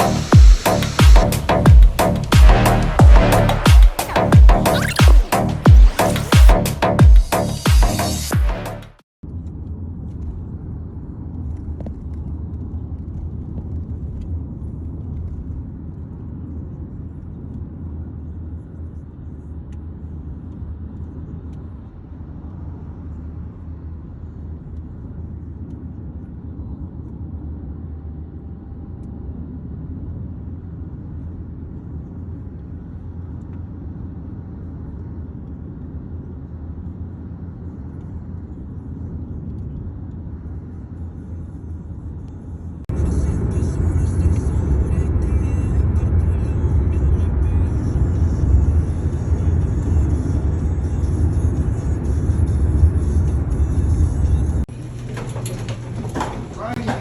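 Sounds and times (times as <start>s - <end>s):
moving vehicle rumble: 36.0s - 57.0s.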